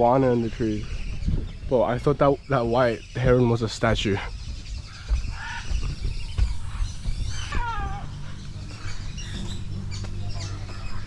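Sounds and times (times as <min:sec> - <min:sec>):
meow-like animal cry: 0:07.5 - 0:08.1.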